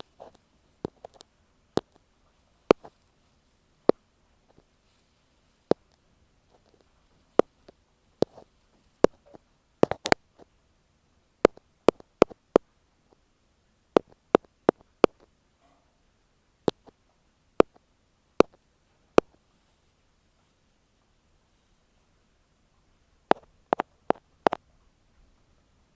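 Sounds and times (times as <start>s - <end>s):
ear pick tapping on microphone: 0.0s - 1.2s, 1.8s - 2.0s, 2.7s - 3.0s, 5.7s - 6.8s, 7.4s - 8.4s, 9.0s - 10.2s, 11.4s - 12.7s, 14.0s - 15.3s, 16.7s - 17.0s, 17.6s - 17.8s, 18.4s - 18.6s, 23.3s - 24.6s.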